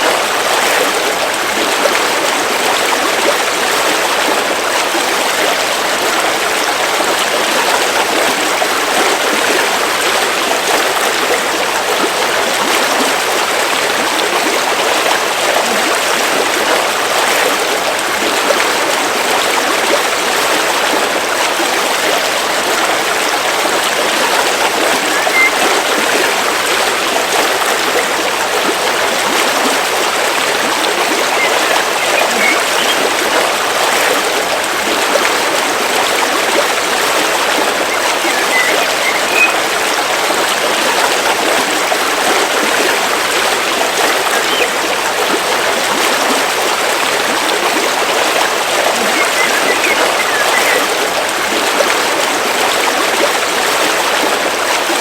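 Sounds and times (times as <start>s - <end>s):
river water flowing: 0.0s - 55.0s
faint bird chirps: 25.0s - 25.7s, 31.2s - 33.1s, 37.8s - 39.6s, 44.4s - 44.7s, 48.9s - 50.9s.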